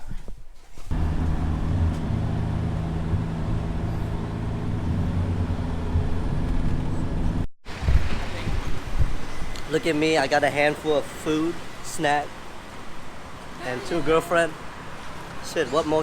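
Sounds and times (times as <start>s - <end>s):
vehicle engine and road noise: 0.9s - 8.7s.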